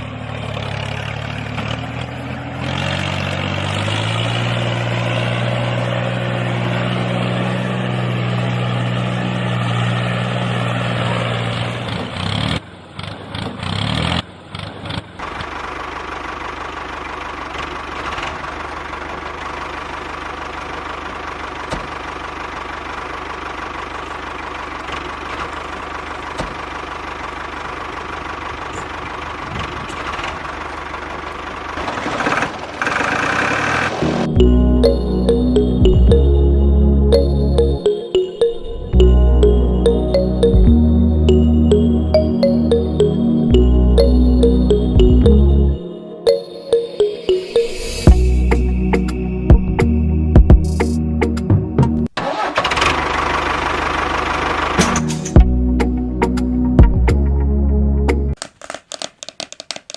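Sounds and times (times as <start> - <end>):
engine idling: 15.2 - 34.2, 52.2 - 57.0.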